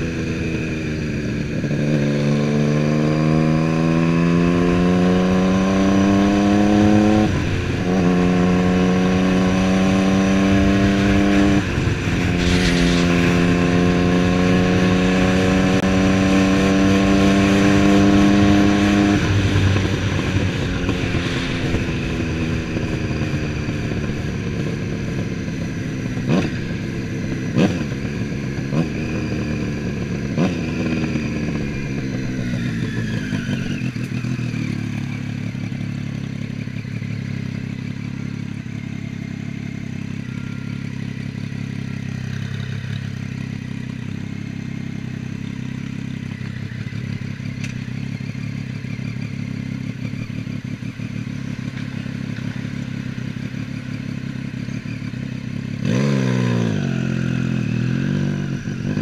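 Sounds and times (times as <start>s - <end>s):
motorcycle engine revs falling: 0.0s - 38.0s
exhaust cracks: 11.6s - 15.6s
motorcycle engine idling: 18.4s - 56.1s.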